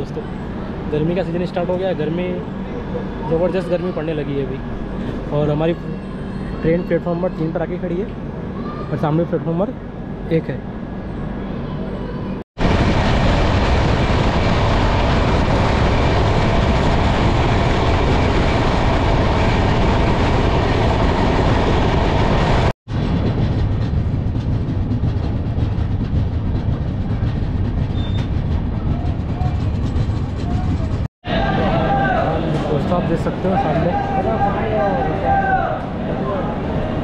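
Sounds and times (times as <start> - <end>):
train wheels on rails: 12.6 - 31.1.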